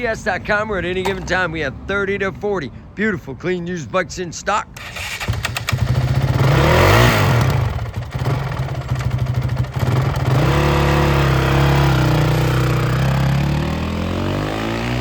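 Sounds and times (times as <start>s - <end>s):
motorcycle engine revving and idling: 4.8s - 15.0s.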